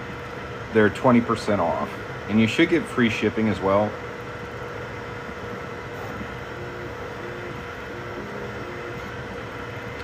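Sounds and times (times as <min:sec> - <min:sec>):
printer mechanical hum: 0:00.0 - 0:10.0
stepper motor notes: 0:05.9 - 0:10.0.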